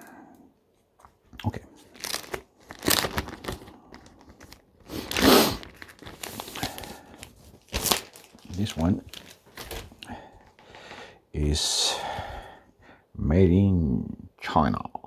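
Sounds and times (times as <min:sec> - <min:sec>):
plastic packaging crinkling: 0:01.4 - 0:10.6.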